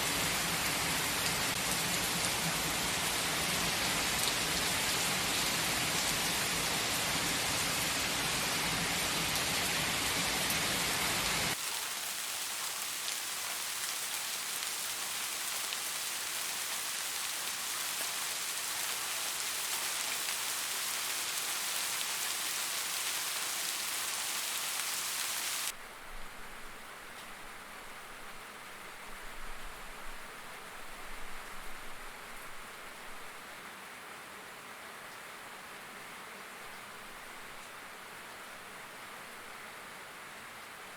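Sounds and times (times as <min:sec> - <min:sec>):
rain falling: 0:00.0 - 0:25.8.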